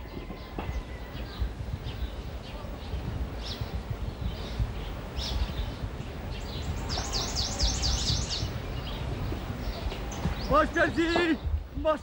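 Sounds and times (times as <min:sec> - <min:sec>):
small bird chirping: 0:00.8 - 0:11.2.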